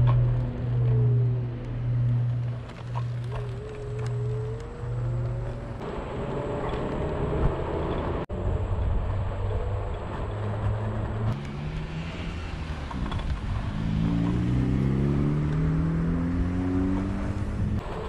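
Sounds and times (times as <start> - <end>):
vehicle engine accelerating: 0.0 - 18.0.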